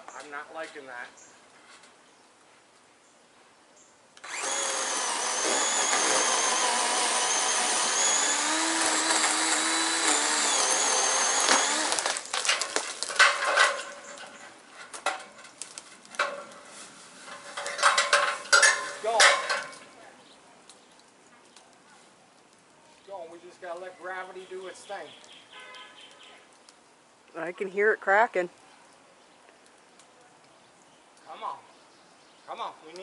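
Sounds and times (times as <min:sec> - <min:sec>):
chainsaw cutting wood: 0:04.2 - 0:14.4.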